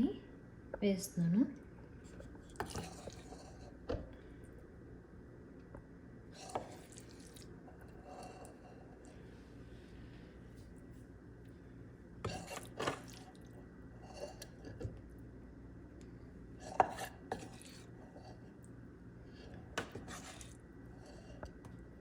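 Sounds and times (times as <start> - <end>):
spoon scraping a dish: 12.3 - 13.2, 16.6 - 18.4, 19.8 - 21.2.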